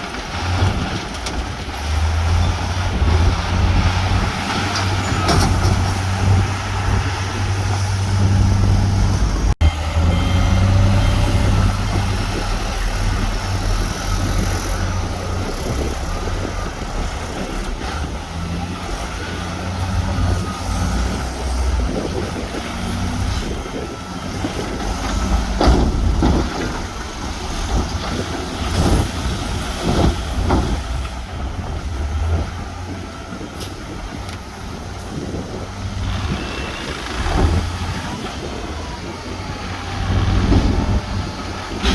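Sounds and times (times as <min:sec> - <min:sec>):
diesel engines droning: 0:00.0 - 0:41.9
machine knocks and clanks: 0:25.0 - 0:31.1.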